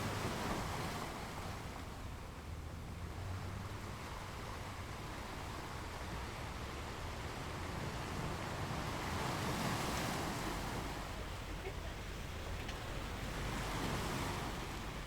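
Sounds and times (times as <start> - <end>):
sea waves washing on shore: 0.0 - 15.0.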